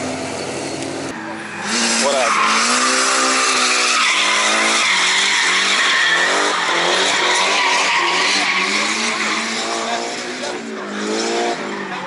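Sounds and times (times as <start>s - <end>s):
car engine at high revs: 0.0s - 12.0s
tyres skidding: 0.0s - 12.0s.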